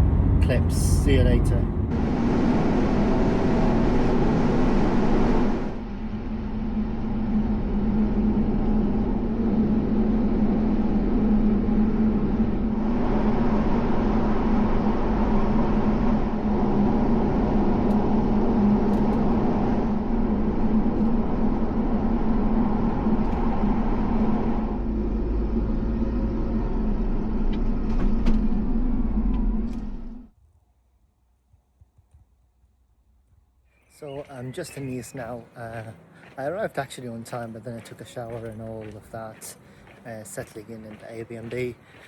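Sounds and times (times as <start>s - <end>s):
car engine and road noise: 0.0s - 30.4s.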